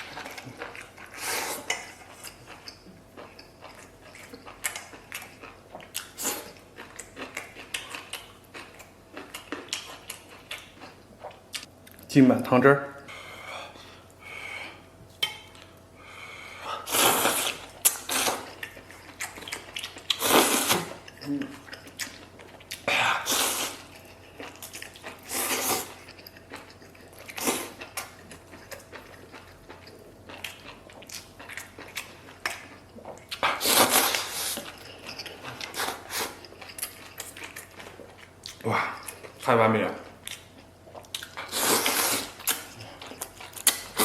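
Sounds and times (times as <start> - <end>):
wet chewing: 0.0 - 12.0, 17.0 - 44.0
person slurping food: 16.7 - 18.5, 20.1 - 21.0, 22.9 - 23.9, 25.2 - 26.0, 33.4 - 34.7, 41.4 - 42.4.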